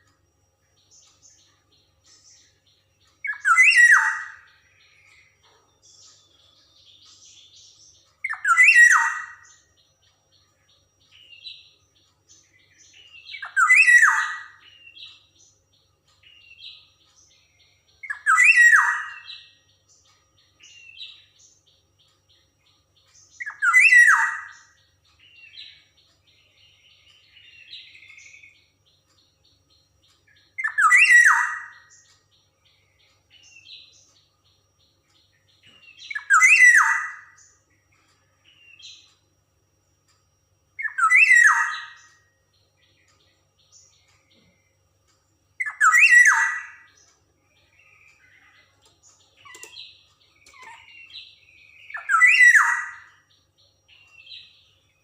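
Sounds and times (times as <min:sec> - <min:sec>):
harsh bird call phrases: 0:03.2 - 0:05.3, 0:08.1 - 0:09.6, 0:12.7 - 0:15.3, 0:18.0 - 0:19.5, 0:23.4 - 0:24.7, 0:30.6 - 0:32.0, 0:35.9 - 0:37.4, 0:40.8 - 0:42.1, 0:45.6 - 0:47.0, 0:49.4 - 0:53.2.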